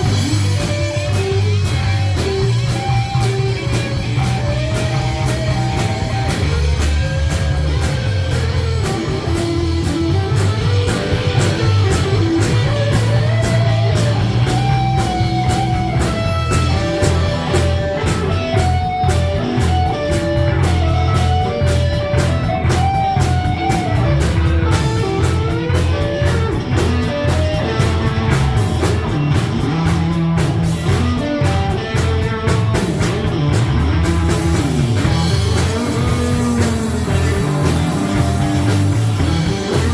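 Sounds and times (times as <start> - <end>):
bass: 0.0 - 39.9
drum kit beat on cymbals: 0.0 - 39.9
electric guitar lead melody: 0.0 - 39.9.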